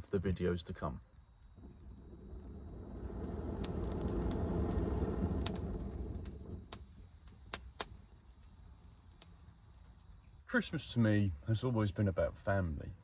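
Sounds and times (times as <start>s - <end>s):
campfire crackling and popping: 1.0s - 10.5s
low rumble: 1.5s - 8.9s.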